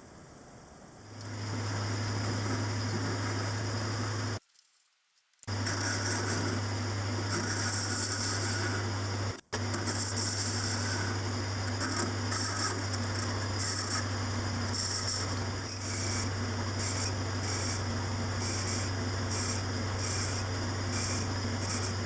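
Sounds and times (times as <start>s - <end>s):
machine tool humming: 5.5s - 22.0s.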